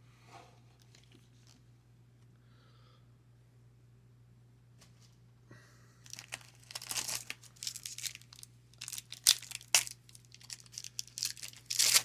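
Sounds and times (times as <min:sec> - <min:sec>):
card pack wrapper crinkling: 0:06.1 - 0:12.0.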